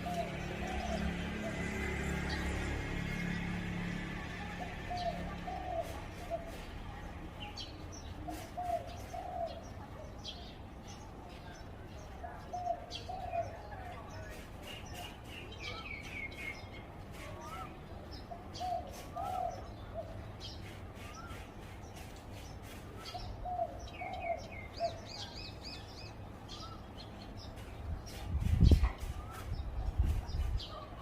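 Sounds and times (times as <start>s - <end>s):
dove cooing: 0.0s - 1.6s, 4.4s - 6.7s, 8.2s - 9.6s
small birds chirping: 0.0s - 31.0s.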